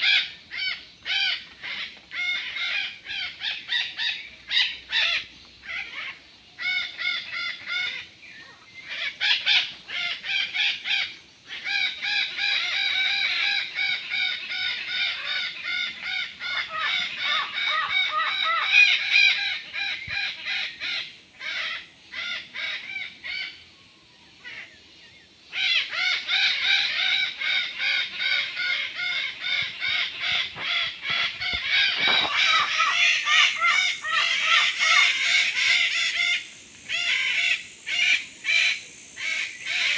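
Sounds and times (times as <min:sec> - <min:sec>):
parrots squawking: 0:25.5 - 0:39.9.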